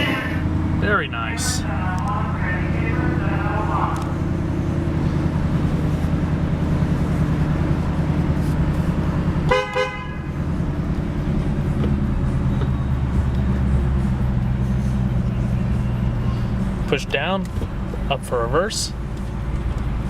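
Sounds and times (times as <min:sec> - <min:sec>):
car engine idling: 0:00.0 - 0:20.0
car horn beeps: 0:09.4 - 0:10.4.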